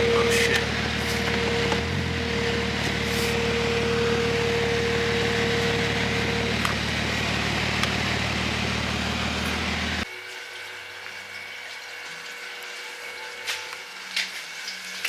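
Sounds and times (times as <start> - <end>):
car engine running: 0.0 - 10.0
road noise: 0.0 - 10.0.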